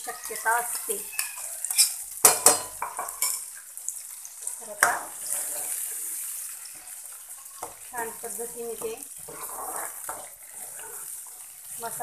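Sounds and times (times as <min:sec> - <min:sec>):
paste sizzling in hot oil: 0:00.0 - 0:12.0
spoon scraping a steel bowl: 0:00.1 - 0:03.4, 0:09.2 - 0:11.1
spoon knocking against pan: 0:00.7 - 0:03.4.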